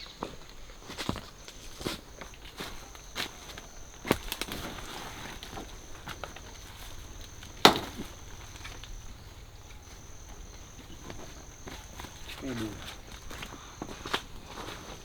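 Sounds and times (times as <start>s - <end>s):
leaves being chopped: 4.0s - 6.4s, 7.2s - 9.0s.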